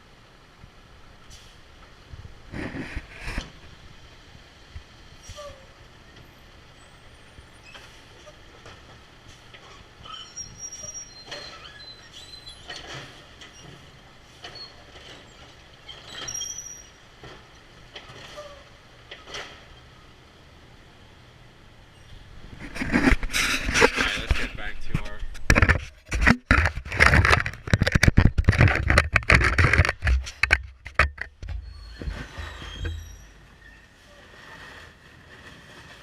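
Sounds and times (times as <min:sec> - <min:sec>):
short high squeaks: 0:09.6 - 0:13.8, 0:14.4 - 0:17.0, 0:31.2 - 0:34.6
scattered knocks: 0:25.4 - 0:31.6.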